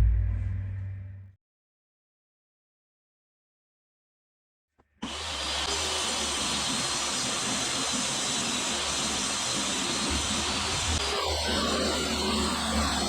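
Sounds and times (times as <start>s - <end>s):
woodworking power tool whirring: 5.0s - 13.0s.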